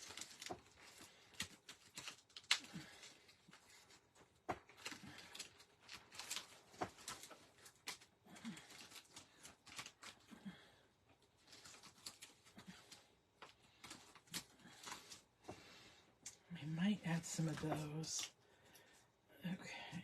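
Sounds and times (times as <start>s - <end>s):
paper rustling: 0.0s - 10.6s, 11.4s - 15.8s.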